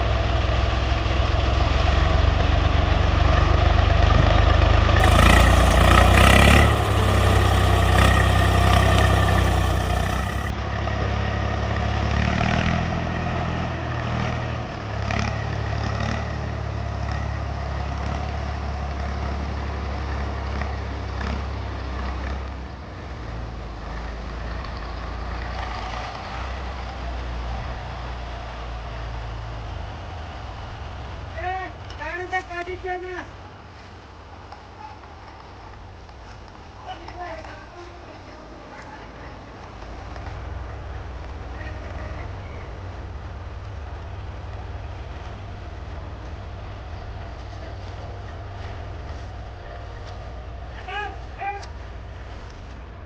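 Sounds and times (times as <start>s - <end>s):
tractor engine running: 5.0s - 10.5s.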